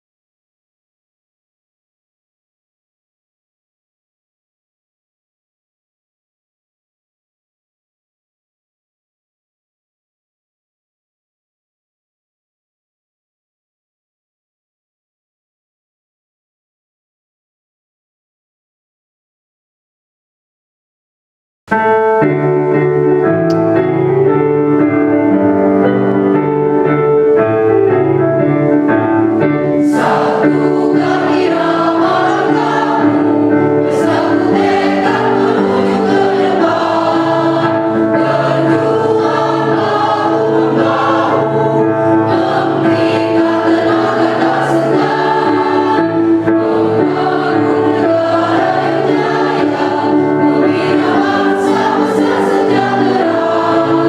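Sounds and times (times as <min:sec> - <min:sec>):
keyboard chords: 0:21.7 - 0:54.0
mixed choir singing a march: 0:29.8 - 0:54.0.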